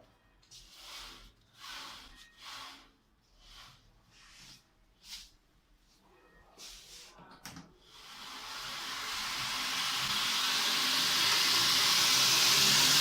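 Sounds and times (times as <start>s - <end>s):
belt grinder rushing hiss: 8.4s - 13.0s.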